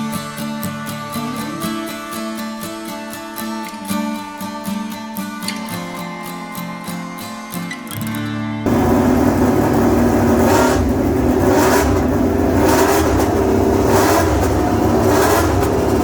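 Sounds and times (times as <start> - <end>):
vehicle engine running: 8.7 - 16.0.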